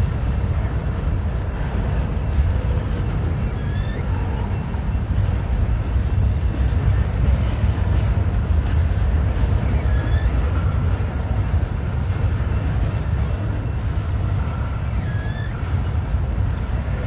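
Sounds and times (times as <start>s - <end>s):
steel wheels rumbling on rails: 0.0s - 17.0s
faint wheel squeals: 1.6s - 5.5s, 8.8s - 17.0s.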